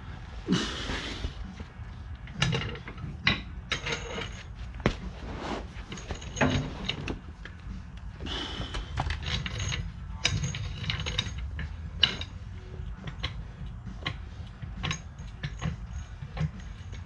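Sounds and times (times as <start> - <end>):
hand tools clicking on metal: 8.0 - 17.0.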